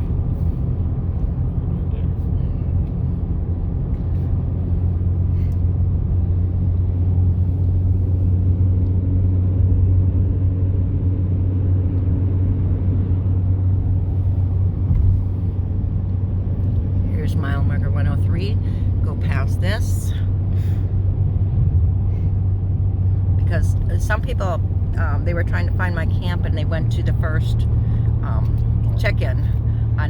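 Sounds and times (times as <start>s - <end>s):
road and engine drone inside vehicle: 0.0s - 30.0s.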